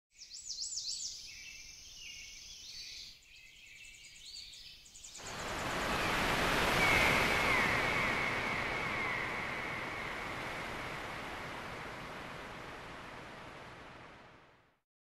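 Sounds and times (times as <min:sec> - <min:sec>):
birds chirping: 0:05.1 - 0:14.2
rush of noise: 0:05.2 - 0:14.7.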